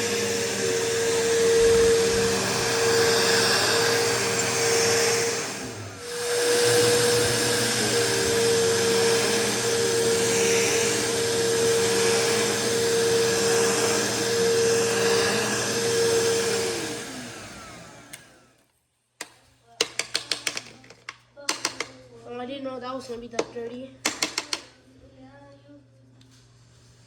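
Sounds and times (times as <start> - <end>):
upright vacuum running: 0.0 - 18.6
sharp clicks and knocks: 19.2 - 22.0, 23.4 - 24.7.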